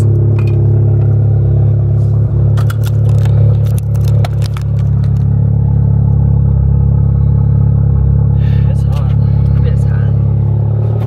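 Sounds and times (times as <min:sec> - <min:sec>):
car engine idling: 0:00.0 - 0:11.0
clicks and scrapes in car: 0:01.9 - 0:05.4.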